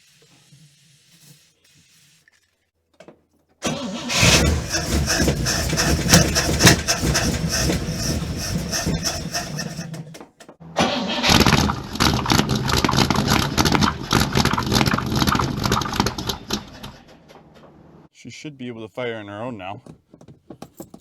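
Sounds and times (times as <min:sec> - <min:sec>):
car engine cranking and starting: 0:03.6 - 0:17.7
engine running unevenly: 0:03.7 - 0:10.2.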